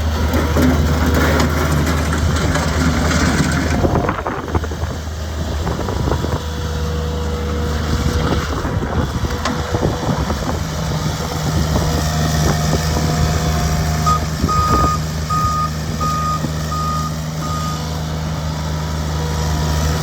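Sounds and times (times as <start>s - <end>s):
diesel engine running: 0.0s - 20.0s
reversing alarm beeps: 14.1s - 17.8s.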